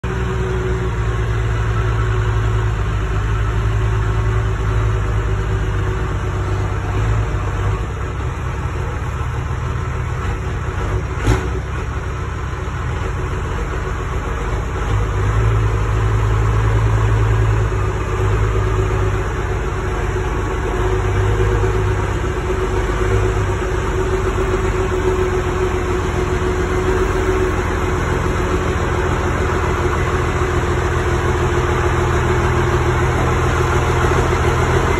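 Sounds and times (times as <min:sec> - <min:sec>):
monster truck engine idling: 0:00.0 - 0:34.9.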